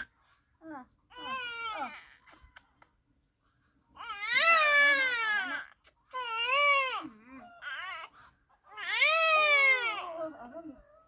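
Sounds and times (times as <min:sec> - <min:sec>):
baby crying: 0:01.1 - 0:02.4, 0:04.0 - 0:10.2.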